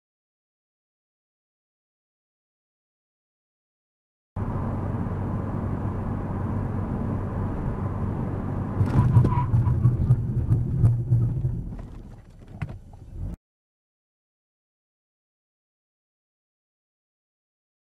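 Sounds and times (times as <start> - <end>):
car driving hum: 4.4 - 13.4
uneven rumbling with knocks: 8.8 - 13.4.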